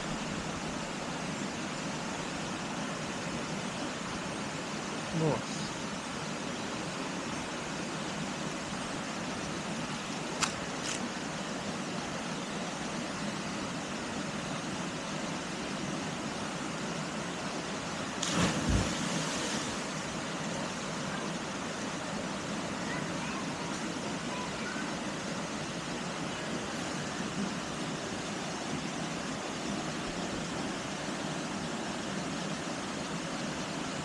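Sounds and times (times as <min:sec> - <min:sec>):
sharp click: 0:10.4 - 0:11.0.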